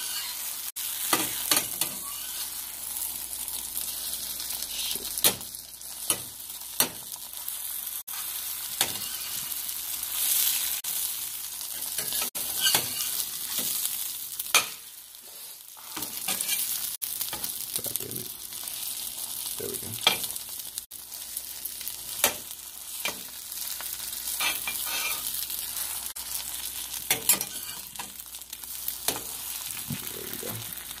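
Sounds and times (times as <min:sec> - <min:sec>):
food sizzling in a frying pan: 0:00.0 - 0:31.0.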